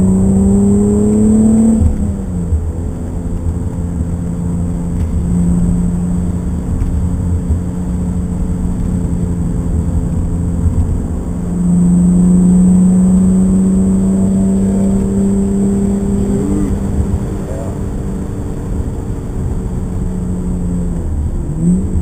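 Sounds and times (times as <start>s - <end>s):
car engine from inside cabin: 0.0s - 22.0s.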